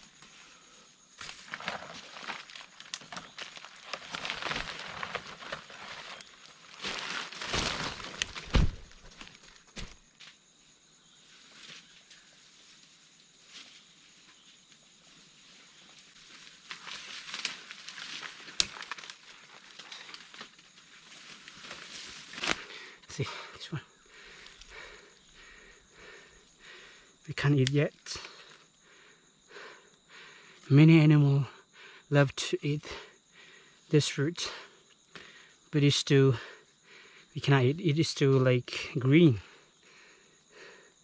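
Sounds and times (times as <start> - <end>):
twig snapping: 1.2 - 6.3, 6.9 - 10.0, 16.7 - 20.6, 21.5 - 22.7
footsteps crunching dry leaves: 1.2 - 10.0, 16.3 - 22.6.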